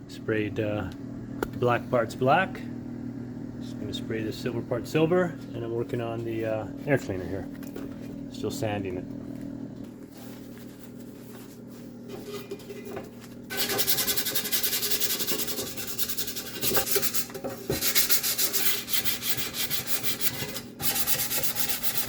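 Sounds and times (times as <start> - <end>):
sandpaper rubbing on metal: 13.5 - 22.0.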